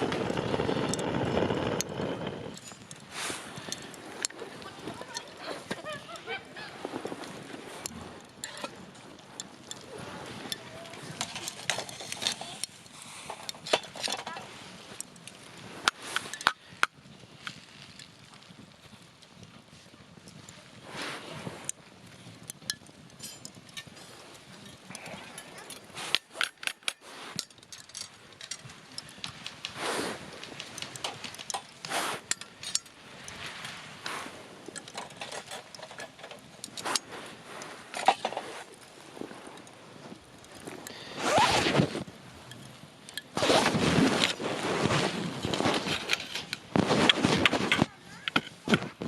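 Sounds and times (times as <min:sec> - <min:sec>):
fire hissing rushes: 0:00.0 - 0:18.1, 0:20.5 - 0:21.7, 0:28.8 - 0:47.8
campfire crackling and popping: 0:00.0 - 0:49.0.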